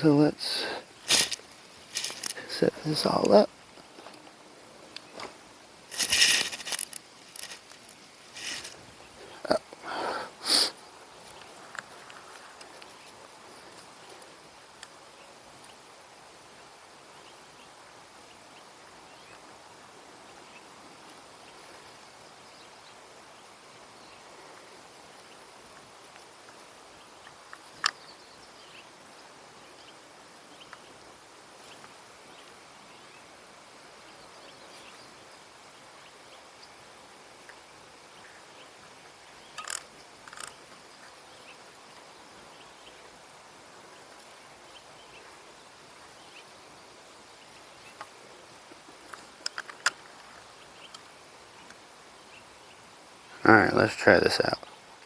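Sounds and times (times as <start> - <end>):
sharp clicks: 39.6 - 40.6.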